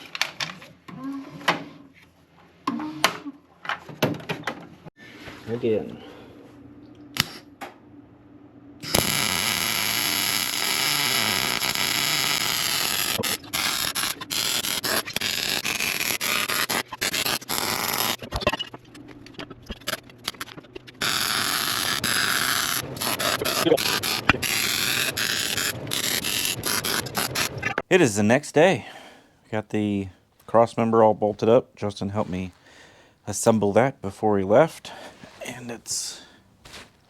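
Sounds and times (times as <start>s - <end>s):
loud shop tool running: 8.8s - 18.2s, 21.0s - 27.6s.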